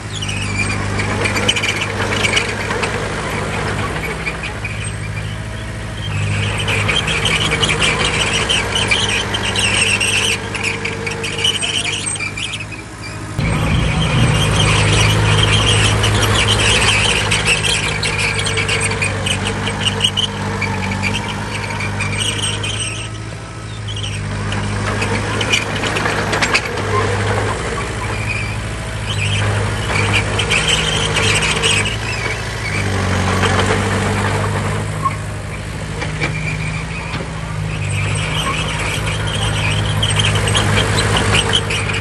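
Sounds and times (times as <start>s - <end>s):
diesel earthmoving machinery running: 0.0s - 42.0s
high-pitched metal squealing: 13.4s - 24.4s.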